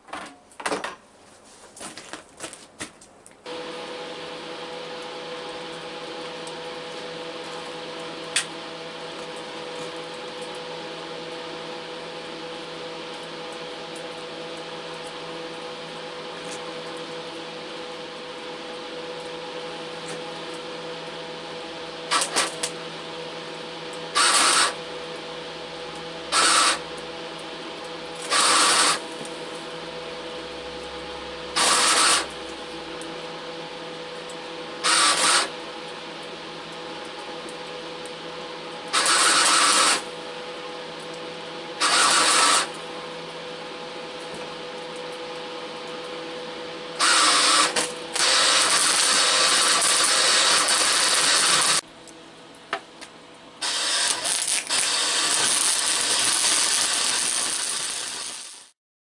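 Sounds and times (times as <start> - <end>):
electric welder humming: 3.5 - 58.8
arc welding bursts: 22.1 - 22.7, 24.1 - 24.8, 26.3 - 26.9, 28.2 - 29.1, 31.5 - 32.4, 34.8 - 35.6, 38.9 - 40.1, 41.8 - 42.7, 47.0 - 51.8, 53.6 - 58.8.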